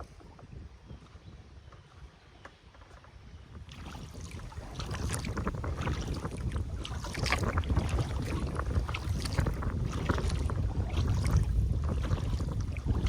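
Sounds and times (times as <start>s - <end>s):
wind on microphone: 0.0s - 2.2s, 3.0s - 13.0s
water splashing and trickling: 2.7s - 13.0s.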